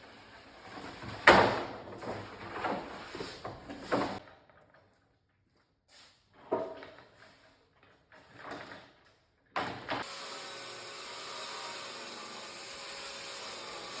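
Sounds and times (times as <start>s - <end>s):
power tool motor whirring: 10.0s - 14.0s.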